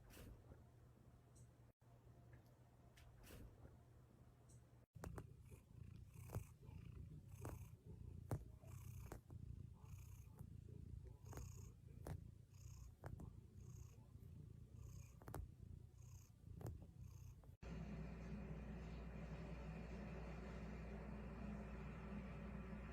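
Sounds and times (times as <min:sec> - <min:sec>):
cat purring: 0:04.9 - 0:22.9.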